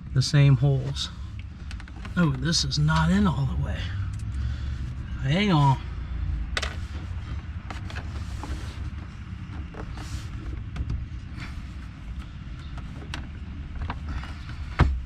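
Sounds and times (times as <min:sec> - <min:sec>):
steady low rumble: 0:00.0 - 0:15.0
plastic trim clicks and creaks: 0:01.4 - 0:03.1.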